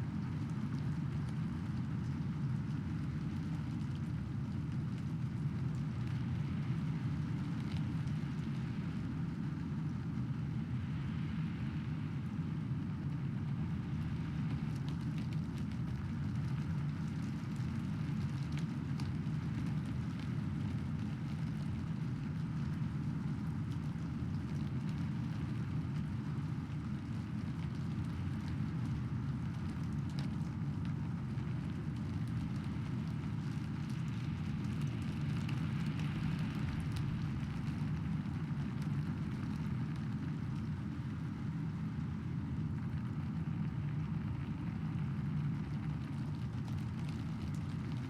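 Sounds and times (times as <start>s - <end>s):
low rumble: 34.5s - 38.4s.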